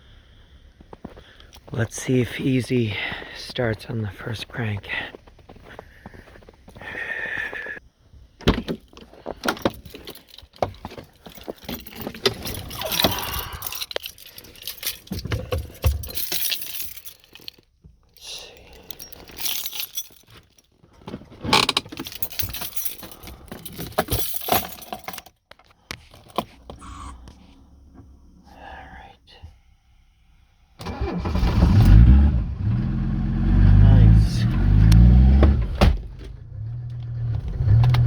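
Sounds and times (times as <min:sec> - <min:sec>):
handling clicks and knocks: 0:08.4 - 0:26.8
keys jangling: 0:08.6 - 0:26.6.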